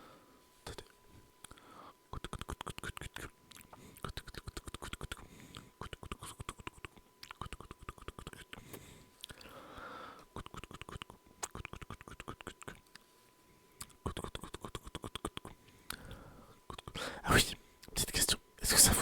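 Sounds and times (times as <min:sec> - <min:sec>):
wet mouth clicks and smacks: 0:02.2 - 0:08.6, 0:10.4 - 0:13.0, 0:13.8 - 0:16.0.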